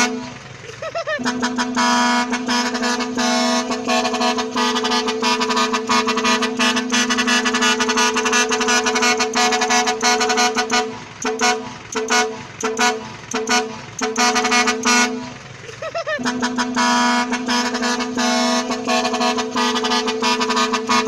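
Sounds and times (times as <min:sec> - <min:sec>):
truck horn: 0:00.0 - 0:21.0.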